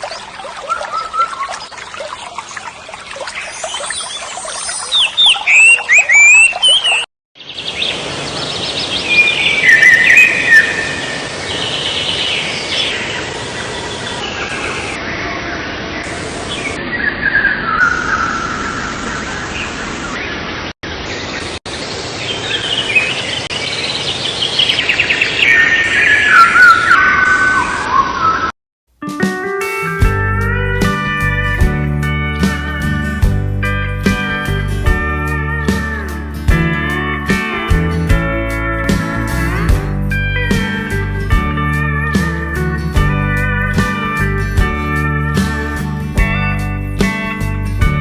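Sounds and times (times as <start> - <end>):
birds chirping and singing: 0.0 - 2.6, 3.2 - 15.0, 22.2 - 27.9.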